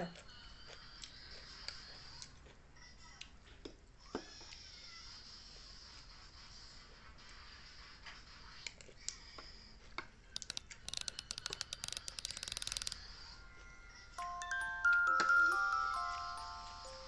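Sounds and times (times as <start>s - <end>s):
sharp clicks: 10.3s - 13.4s
bright chime notes: 13.8s - 17.0s.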